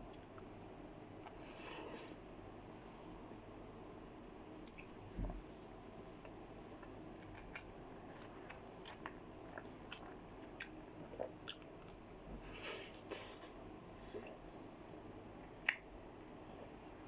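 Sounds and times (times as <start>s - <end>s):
chewing and biting food: 6.8s - 12.1s.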